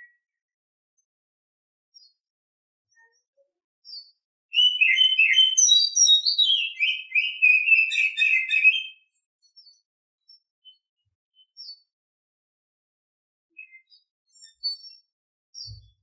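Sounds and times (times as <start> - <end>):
bird singing whistled notes: 3.9 - 11.8, 13.6 - 15.9.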